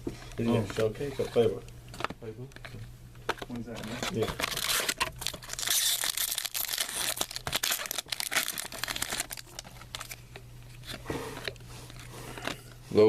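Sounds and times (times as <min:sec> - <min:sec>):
card pack wrapper crinkling and tearing: 0:03.5 - 0:10.2.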